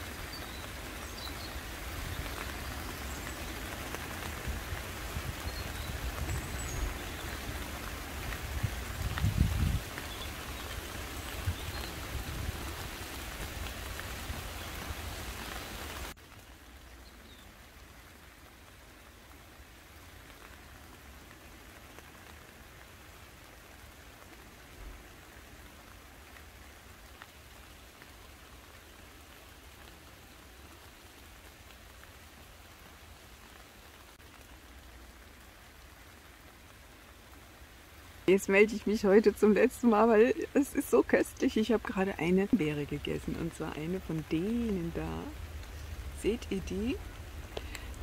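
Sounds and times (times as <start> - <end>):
rain falling on leaves: 0.0 - 48.0.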